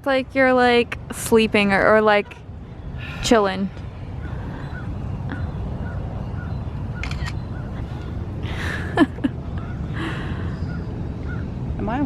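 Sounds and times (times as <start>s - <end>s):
sharp clicks: 7.0s - 7.4s.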